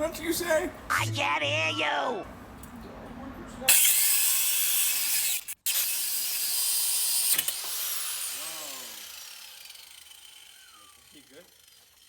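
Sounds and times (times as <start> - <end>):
angle grinder cutting metal: 3.7 - 12.0
grinder wheel clacking: 7.4 - 12.0.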